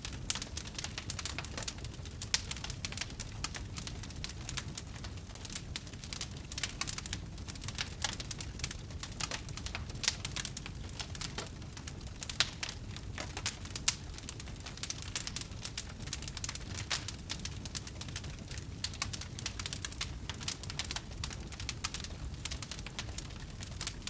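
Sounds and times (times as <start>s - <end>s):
campfire crackling: 0.0s - 24.0s.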